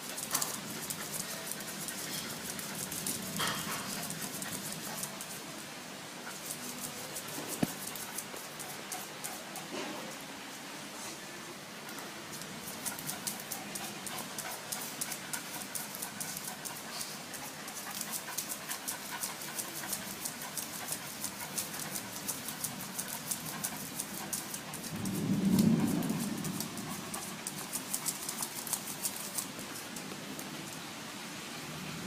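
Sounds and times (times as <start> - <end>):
dog panting: 0.0 - 5.4, 6.2 - 9.7, 12.3 - 31.7.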